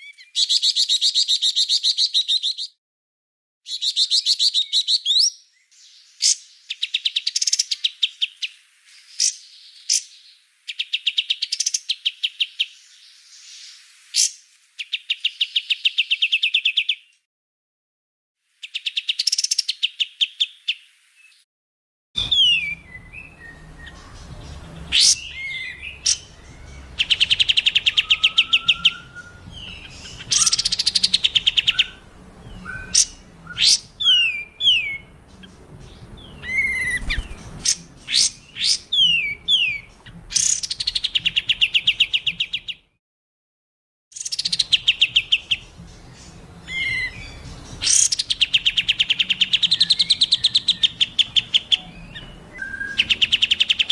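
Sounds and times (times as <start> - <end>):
downward-sweeping whistled notes: 22.2 - 30.7
songbird rapid high trills: 22.2 - 35.7.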